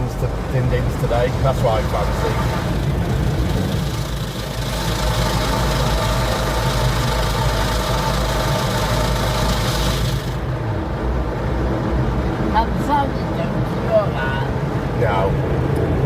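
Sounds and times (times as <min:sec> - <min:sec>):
car engine idling: 0:00.0 - 0:13.0
air dryers blowing: 0:01.6 - 0:10.5.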